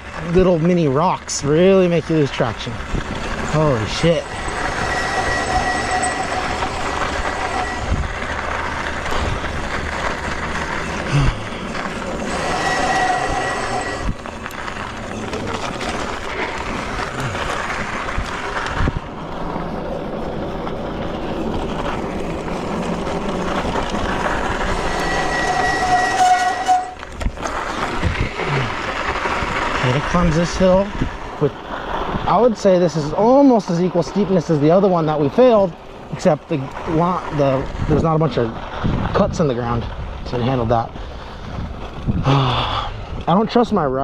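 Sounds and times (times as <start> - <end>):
tyres crunching on gravel: 0.0 - 42.3
electric motor whine: 2.8 - 19.6, 21.0 - 28.6.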